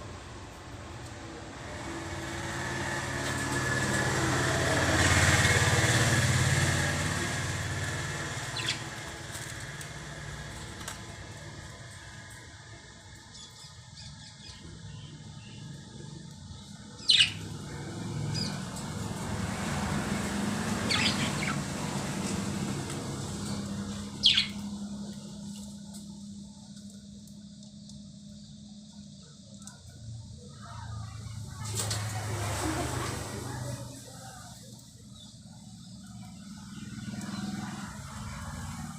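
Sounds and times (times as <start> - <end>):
lovebirds chirping: 8.2 - 9.1, 16.6 - 17.5, 20.8 - 21.7, 23.4 - 25.3.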